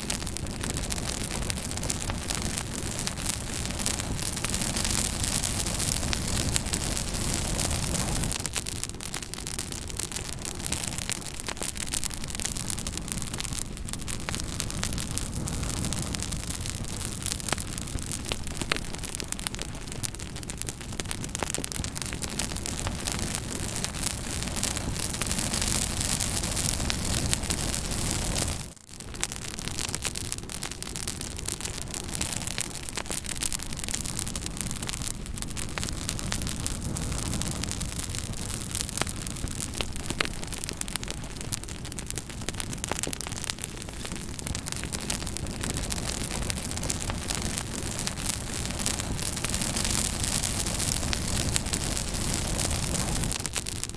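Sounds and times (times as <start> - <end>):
fire crackling: 0.0 - 53.9.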